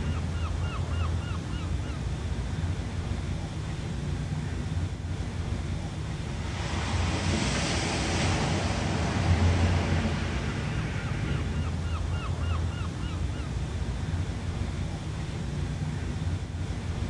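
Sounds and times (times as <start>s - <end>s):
low rumble of sea: 0.0s - 17.0s
ocean waves breaking: 0.0s - 17.0s.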